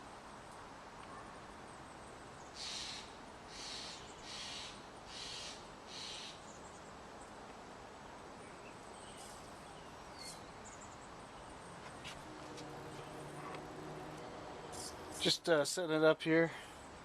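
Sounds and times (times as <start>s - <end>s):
low outdoor background: 0.0s - 17.0s
faint bird chirps: 8.4s - 11.6s.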